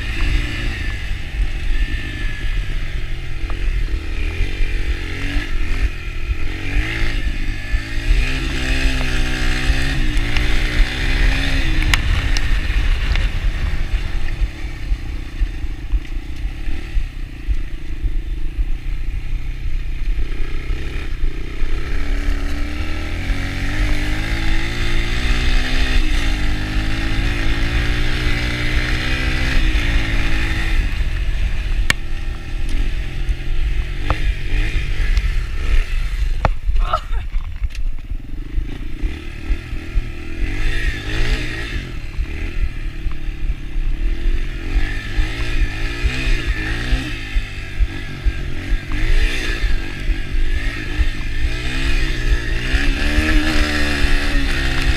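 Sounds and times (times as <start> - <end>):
dirt bike engine revving: 0.0 - 37.2, 38.0 - 54.9.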